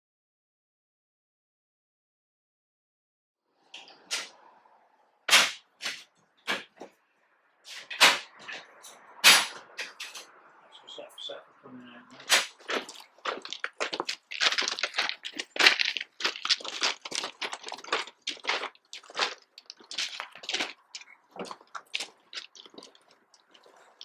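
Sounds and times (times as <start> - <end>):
footsteps crunching on gravel: 12.2 - 24.0.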